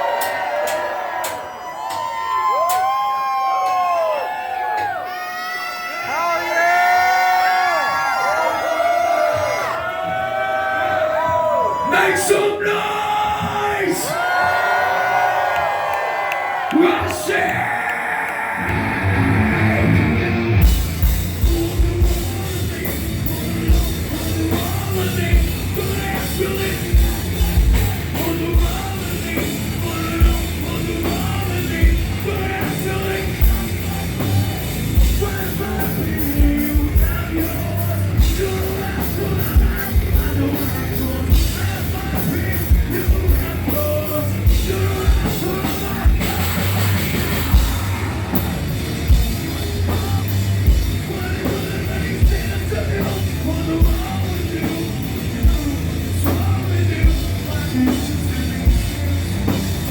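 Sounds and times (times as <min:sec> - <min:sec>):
heavy rock band playing: 0:18.6 - 0:59.9.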